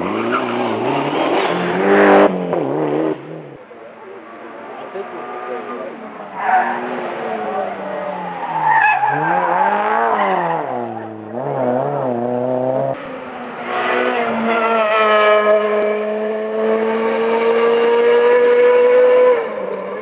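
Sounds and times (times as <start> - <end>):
rally car engine at full throttle: 0.0 - 20.0.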